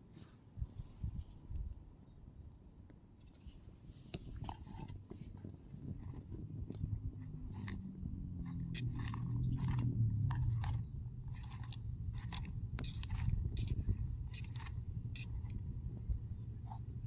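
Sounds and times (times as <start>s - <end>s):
popcorn crunching while chewed: 4.3s - 17.0s
low rumble: 5.5s - 17.0s.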